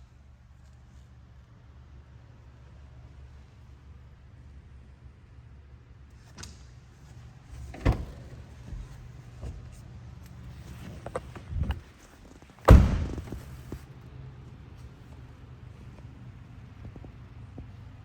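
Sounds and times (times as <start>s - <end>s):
low steady hum: 0.0s - 18.0s
car door slamming: 12.6s - 13.8s.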